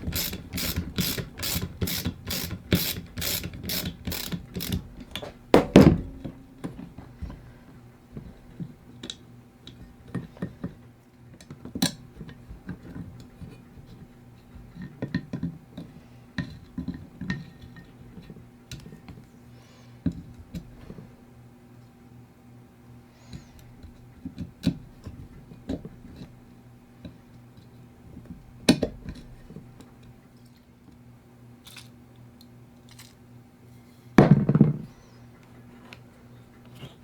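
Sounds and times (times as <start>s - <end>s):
ratchet wrench clicking: 0.1s - 5.3s
loud metal clunk: 5.2s - 6.5s.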